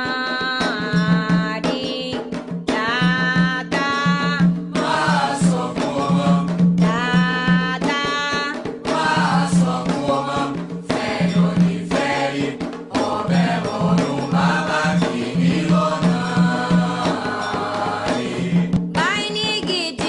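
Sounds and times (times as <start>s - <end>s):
percussion steady pulse: 0.0s - 20.0s
group of voices chanting: 9.0s - 18.7s.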